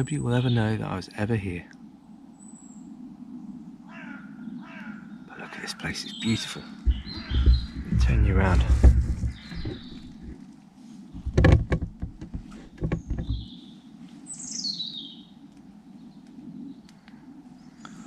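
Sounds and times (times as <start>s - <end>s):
small birds singing: 0.0s - 18.0s
camera handling rustling and knocks: 6.8s - 10.4s, 11.2s - 13.5s.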